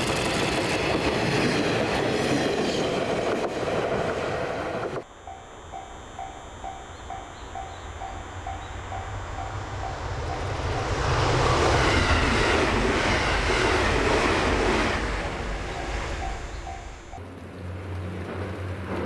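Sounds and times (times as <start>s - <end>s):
train wheels clacking: 4.8s - 17.2s
crossing bell dinging: 5.0s - 11.0s, 15.5s - 17.2s.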